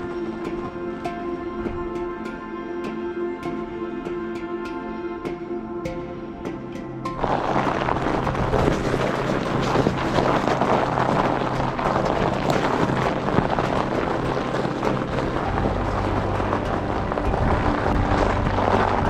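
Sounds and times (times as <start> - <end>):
faint low held notes: 0.0 - 19.0
wind buffeting microphone: 5.2 - 19.0.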